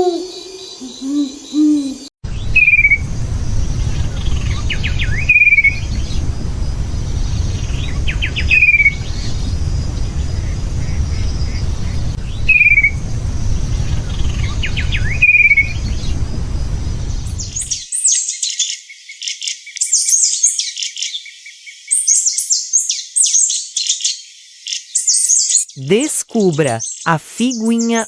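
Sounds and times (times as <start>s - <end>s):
low rumble: 2.2s - 17.8s
songbird twittering: 2.4s - 18.8s.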